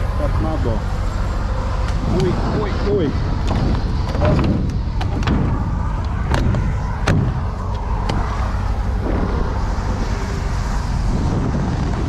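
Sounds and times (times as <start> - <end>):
truck engine idling: 0.0 - 12.0
wind buffeting microphone: 0.0 - 12.0
sharp knocks: 3.4 - 8.3.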